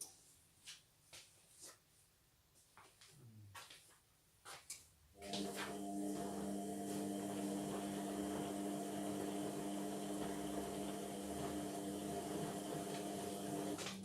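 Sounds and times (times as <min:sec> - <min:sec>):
washing machine motor hum: 0:05.2 - 0:14.0.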